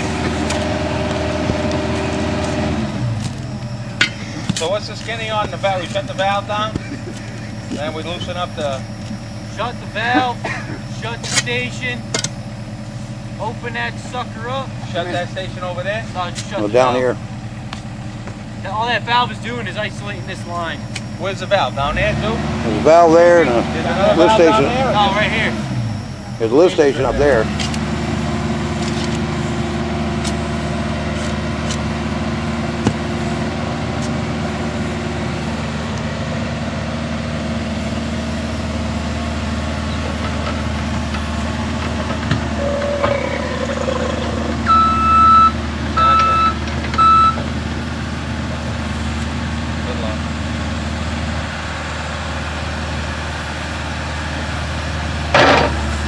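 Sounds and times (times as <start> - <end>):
heavy vehicle engine idling: 0.0 - 56.0
backup alarm beeps: 42.6 - 43.6, 44.6 - 47.4.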